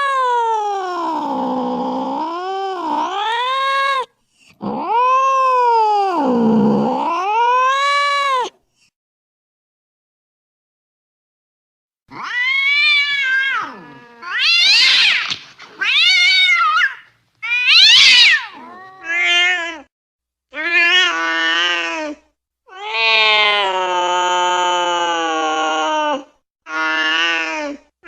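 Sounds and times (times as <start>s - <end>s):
cat yowling: 0.0s - 8.5s, 12.1s - 19.9s, 22.7s - 27.5s.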